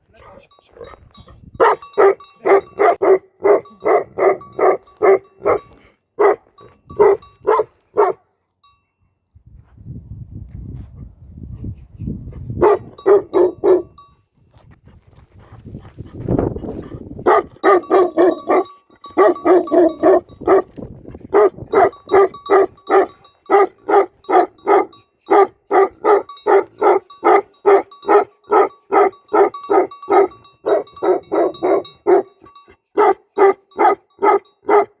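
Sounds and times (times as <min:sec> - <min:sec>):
dog barking: 0:01.6 - 0:08.2, 0:12.6 - 0:14.0, 0:17.2 - 0:20.7, 0:21.3 - 0:35.0.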